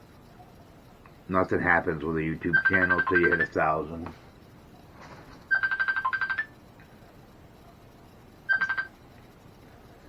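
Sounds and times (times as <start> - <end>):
phone ringtone beeping: 2.5 - 3.6, 5.5 - 6.5, 8.5 - 9.0.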